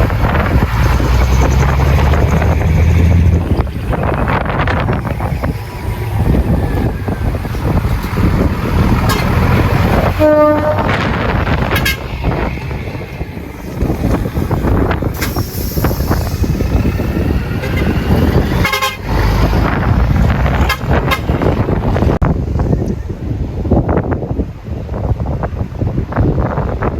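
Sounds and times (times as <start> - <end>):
truck engine rumble: 0.0 - 26.9
truck horn toot: 9.0 - 12.5, 17.5 - 19.2, 20.5 - 21.7
high-pitched horn: 10.0 - 12.2, 17.6 - 19.2, 20.6 - 21.6.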